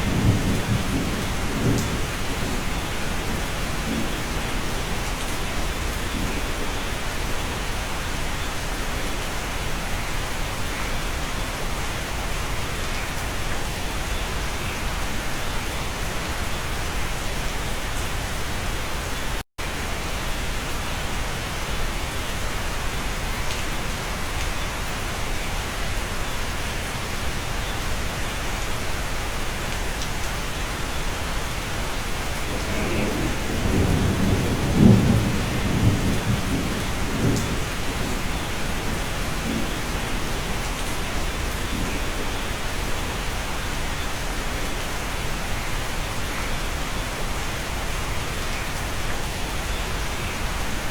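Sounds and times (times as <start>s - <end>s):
low rumble of thunder: 0.0s - 7.7s, 32.2s - 42.6s
steady rain hissing: 0.0s - 50.9s.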